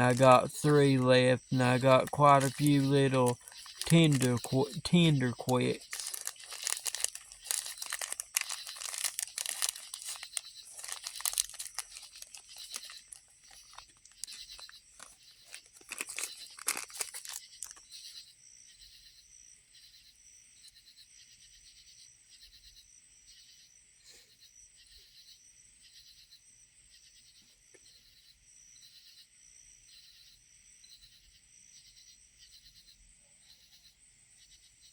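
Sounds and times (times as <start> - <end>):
crunches: 0.0 - 17.8
packaging crinkling and rustling: 0.0 - 17.9.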